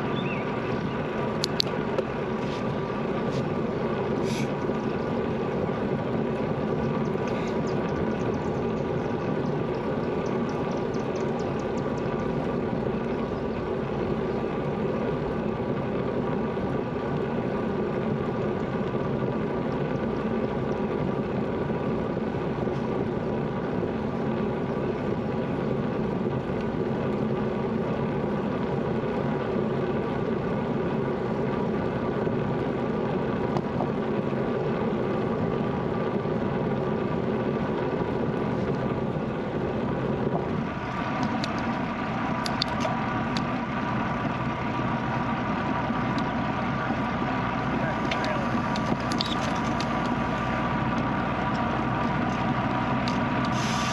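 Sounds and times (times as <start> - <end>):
bicycle tyre noise: 0.0 - 14.1, 20.9 - 53.9
constant hum with steady tones: 0.0 - 53.9.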